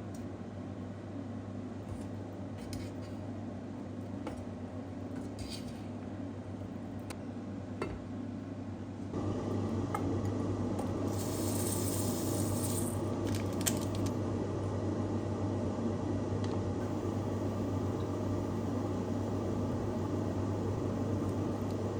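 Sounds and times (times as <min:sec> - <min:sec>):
steady hum: 0:09.1 - 0:21.9.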